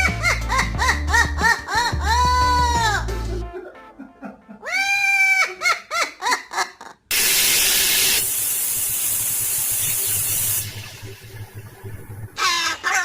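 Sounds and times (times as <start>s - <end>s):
loud hiss: 7.1s - 11.4s.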